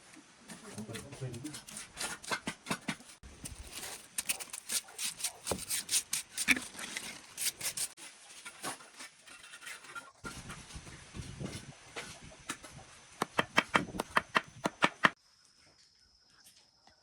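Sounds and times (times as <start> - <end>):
scraping and rubbing strokes: 0.5 - 12.9.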